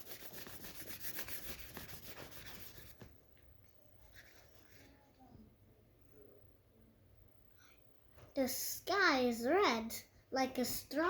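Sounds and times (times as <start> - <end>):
scribbling on paper: 0.0 - 3.0.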